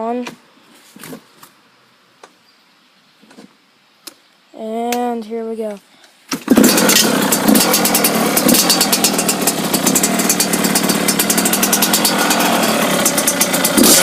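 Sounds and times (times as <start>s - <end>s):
two-stroke engine running: 6.4s - 14.0s.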